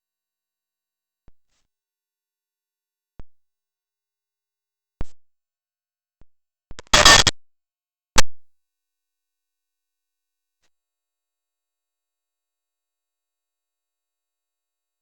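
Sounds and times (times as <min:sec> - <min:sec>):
electronic clicks and pops: 0:06.7 - 0:07.4
crackling noise burst: 0:06.8 - 0:07.3.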